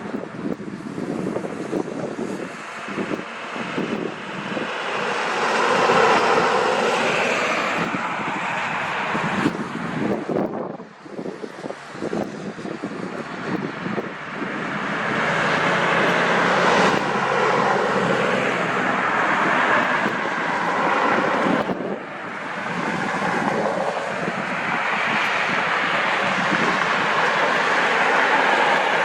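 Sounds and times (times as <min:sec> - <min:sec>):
aircraft engines running: 0:00.0 - 0:29.0.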